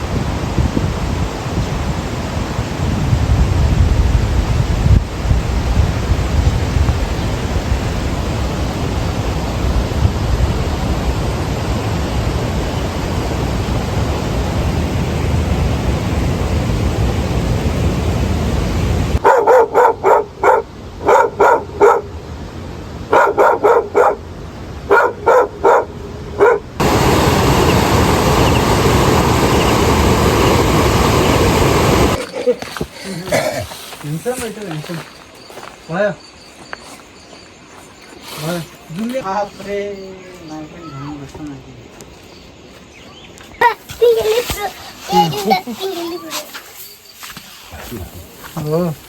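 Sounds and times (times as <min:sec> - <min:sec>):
wind noise on microphone: 0:00.0 - 0:19.2, 0:20.4 - 0:32.9
dog barking: 0:19.2 - 0:22.1, 0:23.1 - 0:24.2, 0:24.9 - 0:26.8.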